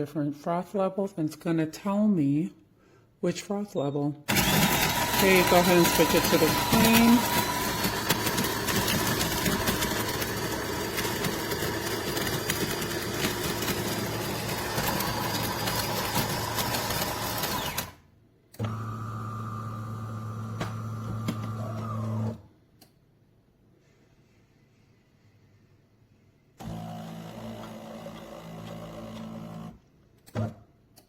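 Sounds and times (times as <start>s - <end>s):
coffee machine humming: 4.3s - 18.0s, 18.6s - 22.4s
grinder grinding coffee beans: 4.3s - 18.0s, 18.7s - 22.4s.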